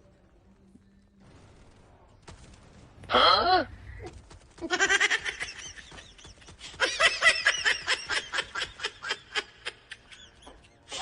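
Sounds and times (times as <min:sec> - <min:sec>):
person laughing: 0:04.6 - 0:11.0.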